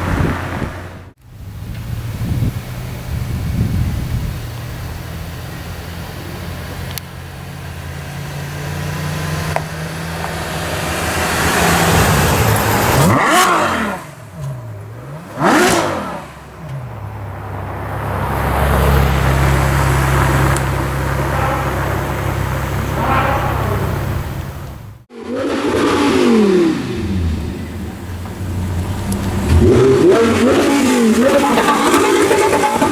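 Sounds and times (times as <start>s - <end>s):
engine throttle blips: 0.0s - 32.9s
sports car engines at low revs: 0.0s - 32.9s.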